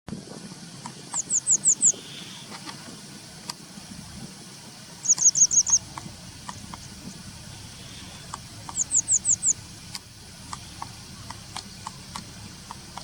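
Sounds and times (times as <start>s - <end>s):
bird calling sharp high notes: 5.0s - 12.7s.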